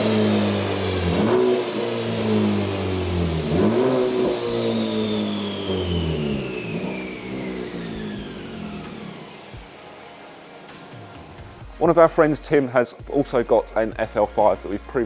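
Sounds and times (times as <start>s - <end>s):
car engine revving: 0.0s - 9.8s
high whine falling in pitch: 0.0s - 9.8s.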